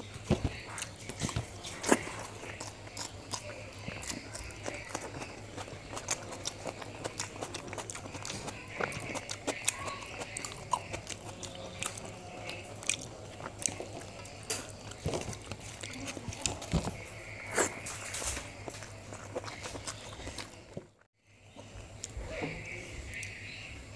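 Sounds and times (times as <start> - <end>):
man chewing and lip smacking: 0.0 - 21.1.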